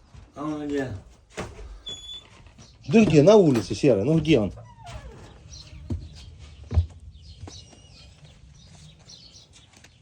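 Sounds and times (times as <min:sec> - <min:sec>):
birds chirping: 0:00.4 - 0:10.0
knocks and dull thump: 0:05.7 - 0:07.8.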